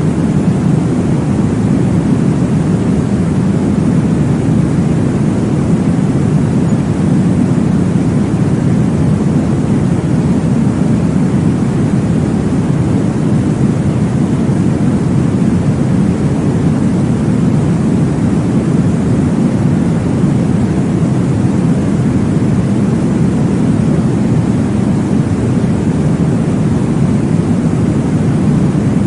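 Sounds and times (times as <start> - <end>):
deep white noise whooshing: 0.0 - 29.0.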